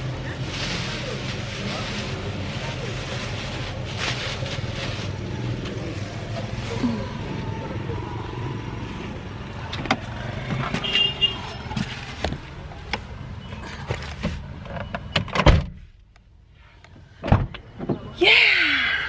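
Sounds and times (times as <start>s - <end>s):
vehicle engine: 0.0s - 15.1s
street noise: 0.0s - 19.0s.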